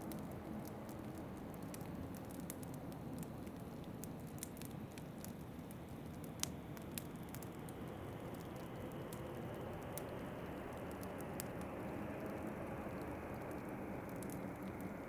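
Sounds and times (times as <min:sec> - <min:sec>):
wood fire crackling: 0:00.0 - 0:15.0
fire popping: 0:00.1 - 0:09.1.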